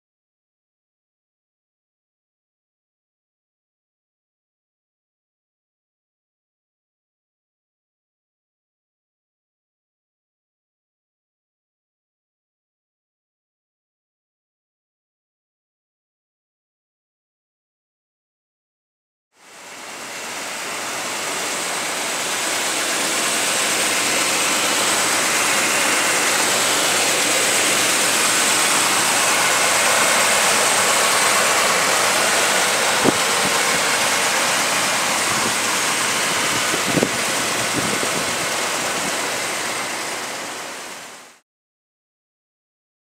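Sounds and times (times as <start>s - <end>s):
car engine idling: 19.4s - 41.4s.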